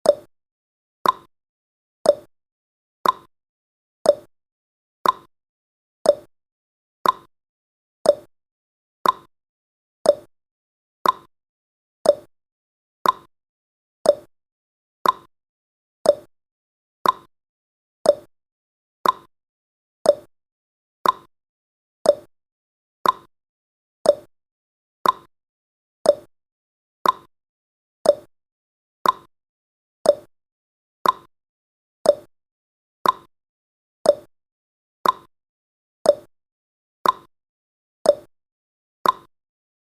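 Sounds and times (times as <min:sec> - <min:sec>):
clock ticking: 0:03.0 - 0:03.3, 0:05.0 - 0:05.3, 0:07.0 - 0:07.3, 0:09.0 - 0:09.3, 0:11.0 - 0:11.3, 0:13.0 - 0:13.3, 0:14.1 - 0:14.3, 0:15.0 - 0:15.3, 0:16.1 - 0:16.3, 0:17.0 - 0:17.3, 0:18.1 - 0:18.3, 0:19.0 - 0:19.3, 0:20.1 - 0:20.3, 0:21.0 - 0:21.3, 0:22.1 - 0:22.3, 0:23.0 - 0:23.3, 0:24.1 - 0:24.3, 0:25.0 - 0:25.3, 0:26.1 - 0:26.3, 0:27.0 - 0:27.3, 0:28.0 - 0:28.3, 0:29.0 - 0:29.3, 0:30.1 - 0:30.3, 0:31.0 - 0:31.3, 0:32.1 - 0:32.3, 0:33.0 - 0:33.3, 0:34.1 - 0:34.3, 0:35.0 - 0:35.3, 0:37.0 - 0:37.3, 0:39.0 - 0:39.3.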